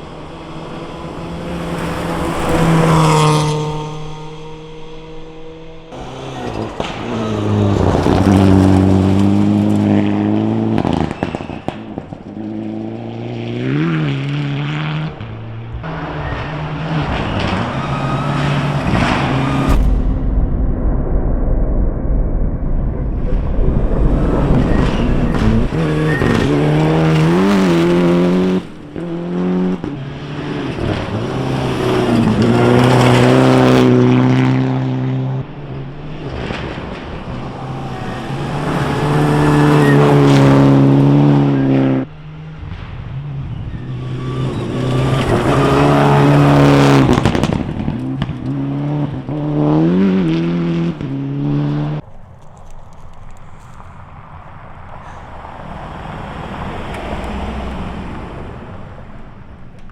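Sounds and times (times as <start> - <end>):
rally car engines revving past: 0.0 - 19.8, 23.3 - 59.9.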